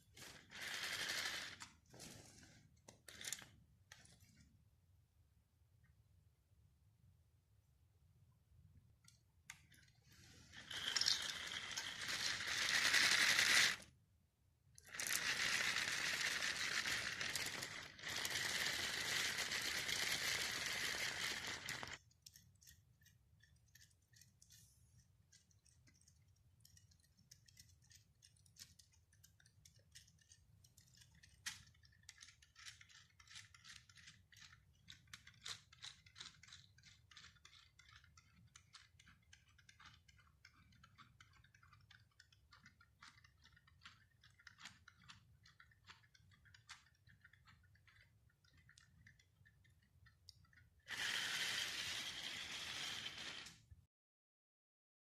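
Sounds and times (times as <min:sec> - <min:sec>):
toy electric motors whirring: 0:00.2 - 0:01.8, 0:09.5 - 0:13.9, 0:14.8 - 0:53.8.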